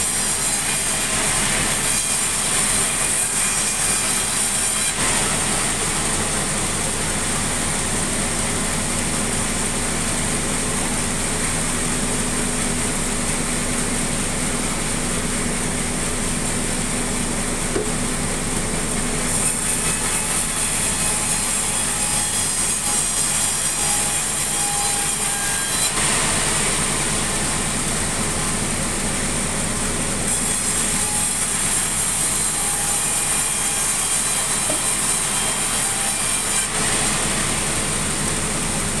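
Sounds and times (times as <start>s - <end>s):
sawmill saw cutting timber: 0.0s - 39.0s.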